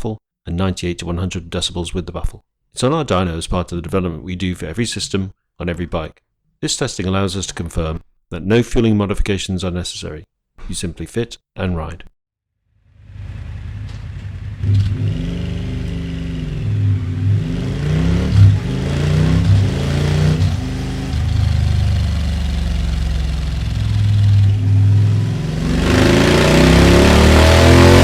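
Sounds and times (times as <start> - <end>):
motorcycle engine revving: 13.0 - 28.0.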